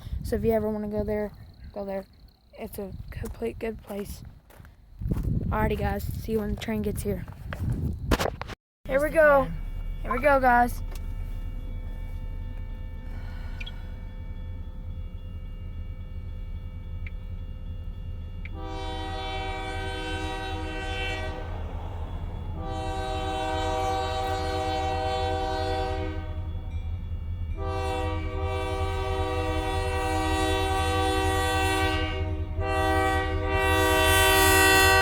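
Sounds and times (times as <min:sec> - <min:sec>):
low rumble: 0:09.0 - 0:30.0
locomotive air horn blasts: 0:18.4 - 0:26.7, 0:27.6 - 0:35.0.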